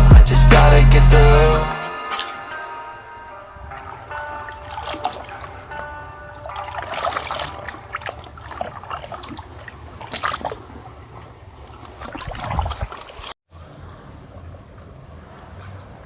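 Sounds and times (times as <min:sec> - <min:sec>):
running water splashing: 0:02.0 - 0:13.4.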